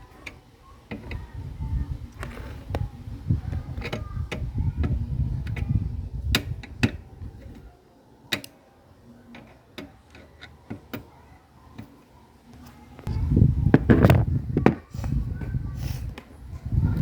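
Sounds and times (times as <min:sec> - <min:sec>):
low rumble of handling noise: 0:00.0 - 0:07.8, 0:09.2 - 0:17.0
small parts clicking and tapping: 0:08.3 - 0:08.6.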